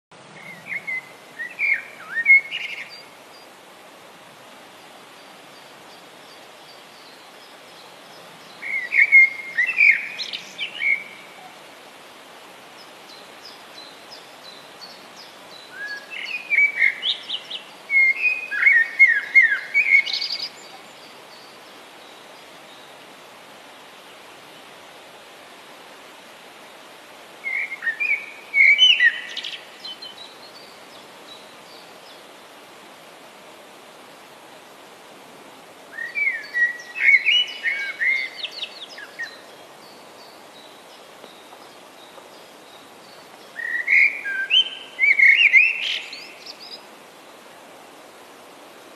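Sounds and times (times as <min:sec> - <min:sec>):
steady background hiss: 0:00.1 - 0:48.9
songbird chirps and whistles: 0:00.4 - 0:03.1, 0:08.6 - 0:11.3, 0:15.6 - 0:20.8, 0:27.4 - 0:30.7, 0:35.9 - 0:39.6, 0:40.2 - 0:46.8.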